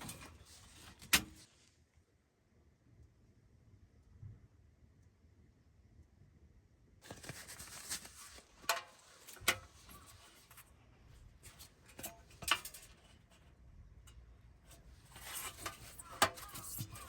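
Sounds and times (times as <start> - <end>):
rustling handling noise: 0.0 - 1.7, 7.0 - 17.0.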